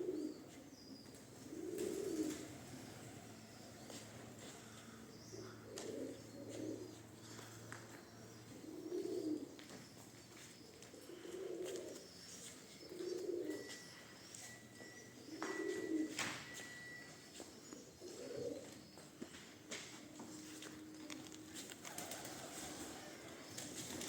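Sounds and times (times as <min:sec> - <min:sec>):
pigeons cooing: 0:00.0 - 0:09.7, 0:10.6 - 0:19.0, 0:20.4 - 0:24.0.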